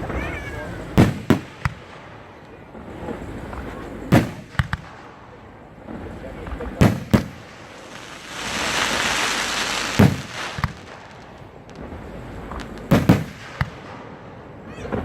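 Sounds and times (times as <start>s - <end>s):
firework bangs: 0.0s - 15.0s
firework rushing hiss: 0.0s - 15.0s
small firework pops: 1.0s - 2.6s, 3.5s - 5.3s, 6.4s - 14.1s.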